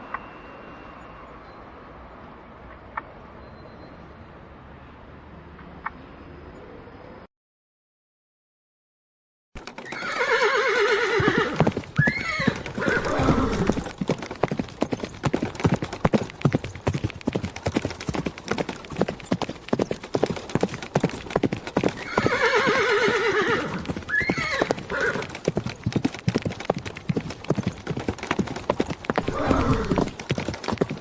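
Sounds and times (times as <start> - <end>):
rapid hoofbeats: 9.6 - 31.0
horse whinnying: 9.7 - 14.0, 21.9 - 25.4, 29.2 - 30.2.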